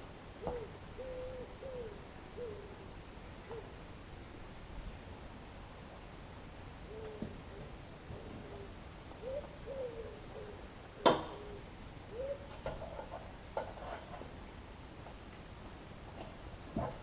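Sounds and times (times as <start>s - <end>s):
dove cooing: 0.4s - 3.8s, 6.8s - 13.0s.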